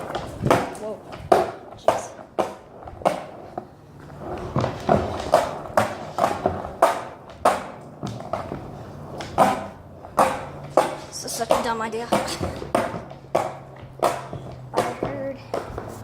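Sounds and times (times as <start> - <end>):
skateboard clacks and knocks: 0.0 - 16.0
skateboard rolling: 0.0 - 16.0.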